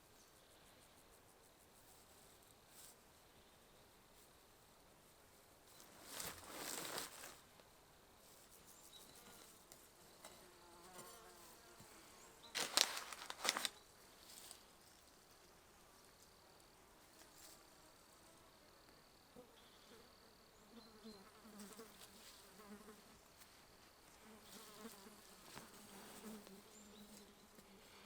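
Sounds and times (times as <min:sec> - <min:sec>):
flying insect buzzing: 0:19.3 - 0:23.4, 0:24.2 - 0:28.0.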